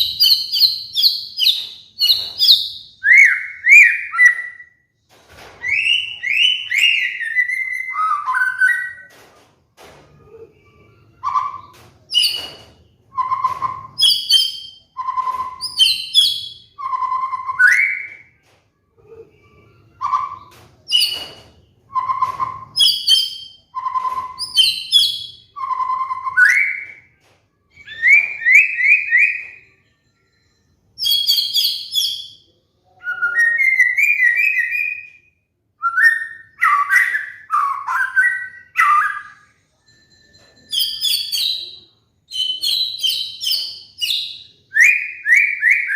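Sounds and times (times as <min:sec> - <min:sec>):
songbird whistles and chattering: 0:00.0 - 0:04.8, 0:05.6 - 0:09.1, 0:11.2 - 0:18.3, 0:20.0 - 0:27.1, 0:27.7 - 0:29.6, 0:40.8 - 0:45.9.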